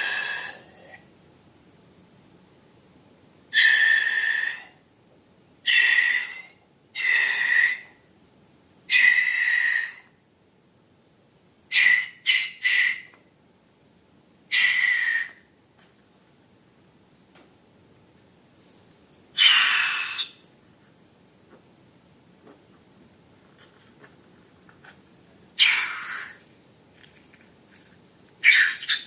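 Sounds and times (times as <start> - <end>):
air squealing out of balloon: 0.0 - 0.6.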